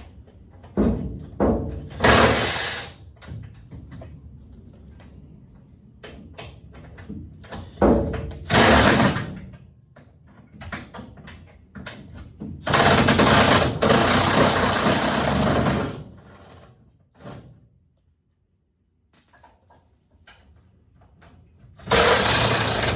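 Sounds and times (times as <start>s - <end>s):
impact wrench running: 1.9s - 3.0s, 8.5s - 9.3s, 12.7s - 16.1s, 21.9s - 22.9s.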